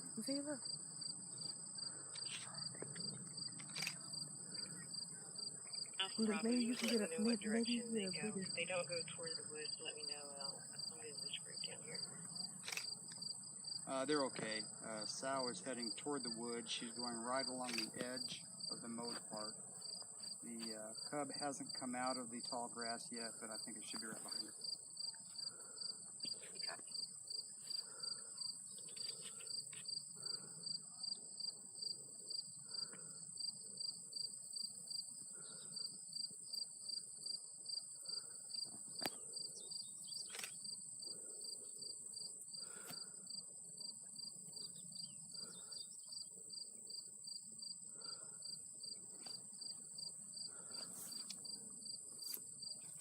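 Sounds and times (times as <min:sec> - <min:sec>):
insects chirping: 0:00.0 - 0:53.0.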